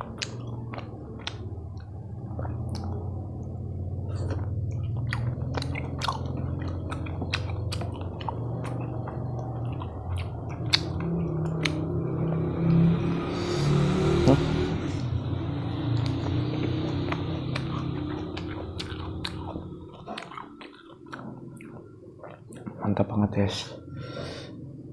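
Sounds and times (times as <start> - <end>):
sticky chewing mouth clicks: 0.0 - 3.5, 4.1 - 11.8, 15.9 - 22.8
steady low hum: 0.0 - 24.9.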